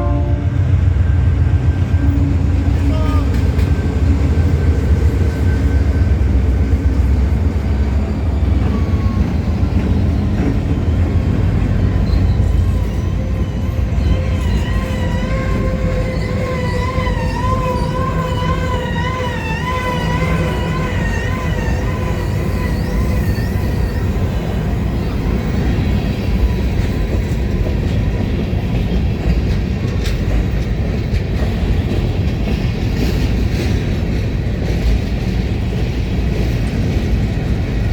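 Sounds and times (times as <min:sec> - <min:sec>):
freight train rumbling past: 0:00.0 - 0:37.9
high wavering squeal: 0:11.8 - 0:24.6.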